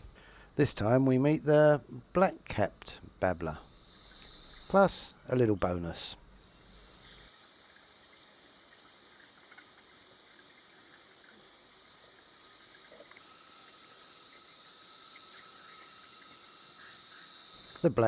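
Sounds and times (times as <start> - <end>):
faint steady tone: 0.0 - 18.0
forest insects chorus: 0.0 - 18.0
pulsing high insect note: 0.9 - 7.9.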